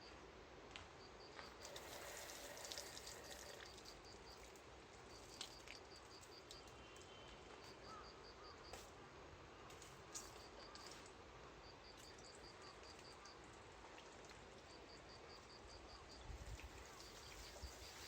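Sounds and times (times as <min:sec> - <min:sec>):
insect chirping: 0:01.0 - 0:08.8, 0:11.6 - 0:13.6, 0:14.6 - 0:18.0.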